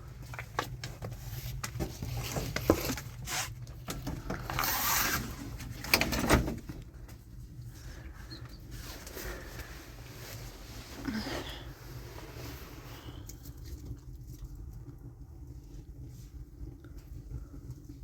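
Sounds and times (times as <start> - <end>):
noisy rustle or scrape: 4.5 - 6.4.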